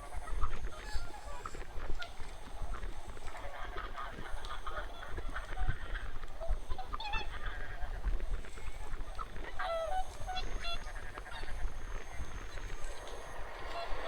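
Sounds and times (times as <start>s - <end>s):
geese honking: 9.2s - 14.0s
low rumble: 11.8s - 14.0s.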